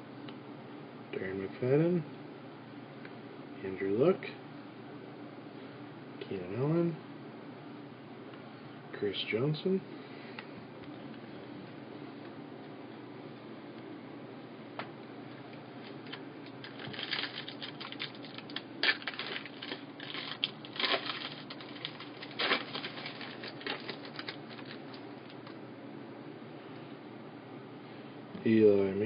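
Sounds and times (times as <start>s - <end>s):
card wrapper crinkling and clicking: 15.8s - 25.6s
wrapper snapping: 15.9s - 25.6s.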